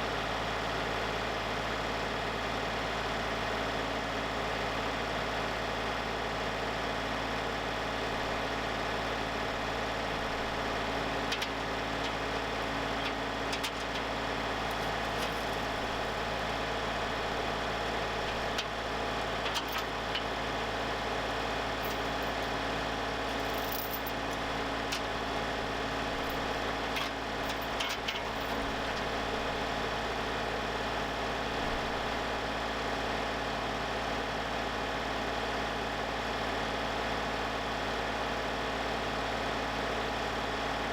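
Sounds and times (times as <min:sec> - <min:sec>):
sawmill engine running: 0:12.1 - 0:32.4.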